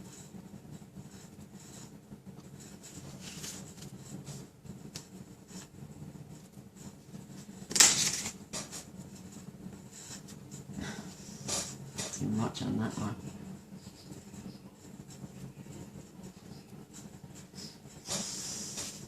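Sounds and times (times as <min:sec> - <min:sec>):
paper rustling: 0:03.0 - 0:03.9, 0:07.7 - 0:08.4.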